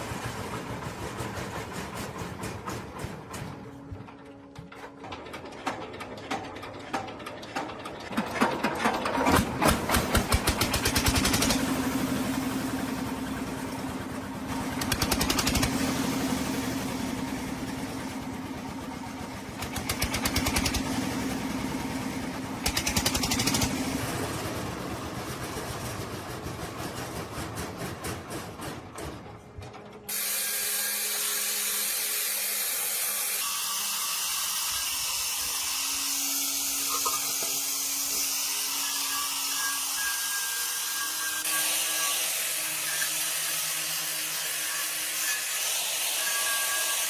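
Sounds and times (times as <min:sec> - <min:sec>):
engine humming with fast clicking: 0:00.0 - 0:30.0.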